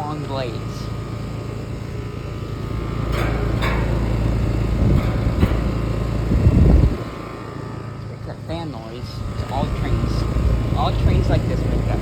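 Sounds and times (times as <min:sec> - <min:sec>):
air conditioner fan humming: 0:00.0 - 0:12.0
heavy low bumps: 0:02.7 - 0:07.4.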